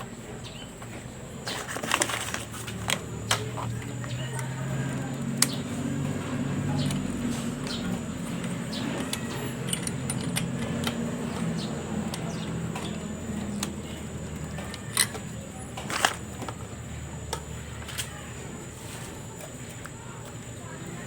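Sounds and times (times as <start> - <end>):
metal tools clinking: 1.4 - 18.2
jangling rattle: 6.2 - 16.8.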